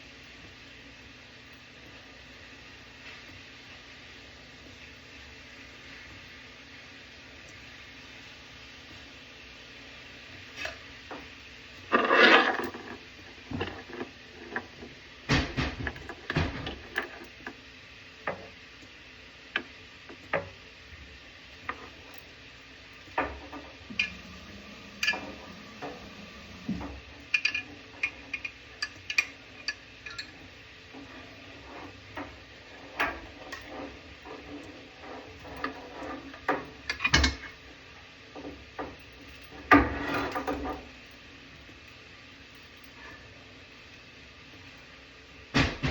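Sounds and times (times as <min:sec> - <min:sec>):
tools and metal fittings clinking: 0:26.8 - 0:37.6.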